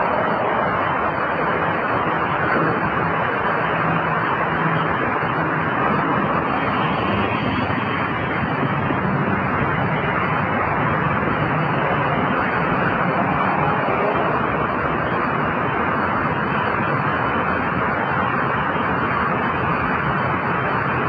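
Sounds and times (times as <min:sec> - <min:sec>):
road traffic rushing: 0:00.0 - 0:21.0.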